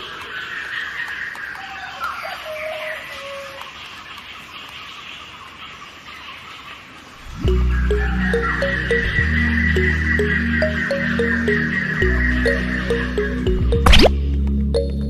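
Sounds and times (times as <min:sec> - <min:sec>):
birds calling: 0:00.0 - 0:14.4
loud music: 0:07.4 - 0:14.3.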